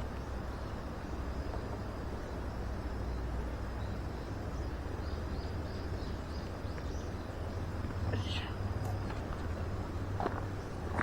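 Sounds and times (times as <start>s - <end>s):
faint high chirps: 8.0s - 9.0s.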